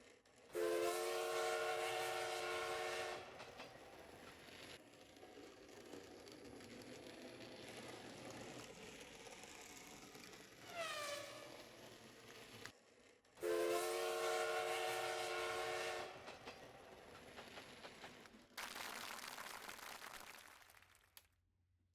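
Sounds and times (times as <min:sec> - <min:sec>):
steam locomotive whistle chord: 0:00.6 - 0:03.3, 0:13.4 - 0:16.2.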